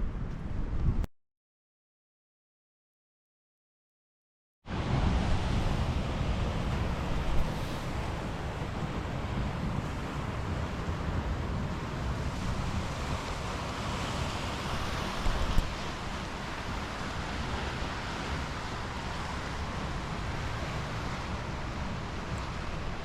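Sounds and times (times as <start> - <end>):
wind buffeting microphone: 0.0 - 1.1, 4.7 - 23.0
steady rushing noise: 4.7 - 23.0.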